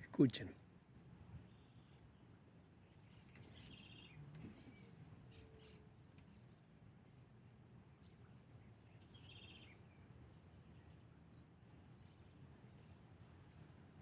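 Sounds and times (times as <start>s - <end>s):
bird chirp: 3.1s - 5.8s.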